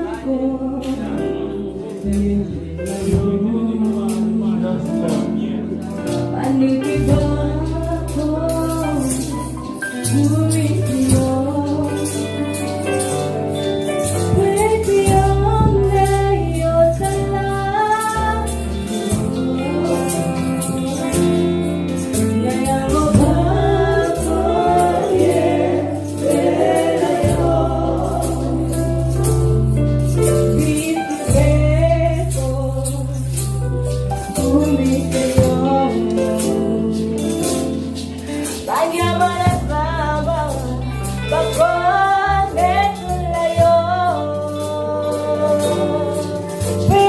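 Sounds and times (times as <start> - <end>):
choir singing a worship song: 0.0 - 5.7, 14.0 - 32.9, 34.3 - 47.0
band with bass and percussion: 0.0 - 47.0.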